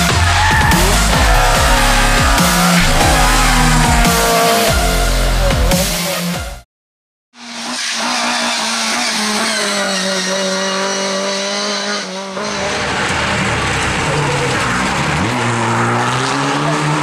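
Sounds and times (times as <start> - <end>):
tyre noise: 0.0 - 5.9
rally car engine accelerating: 0.0 - 6.6, 7.4 - 17.0
rally car engine at high revs: 0.0 - 6.6, 7.3 - 17.0.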